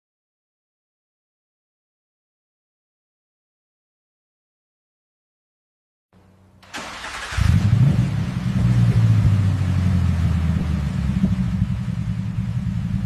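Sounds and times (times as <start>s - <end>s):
car engine starting and running: 6.2s - 13.0s.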